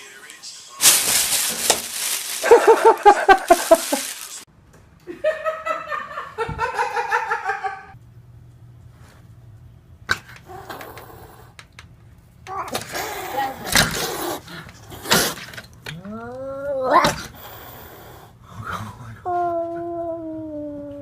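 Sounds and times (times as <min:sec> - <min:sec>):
people laughing: 0:02.4 - 0:04.3, 0:05.1 - 0:08.0.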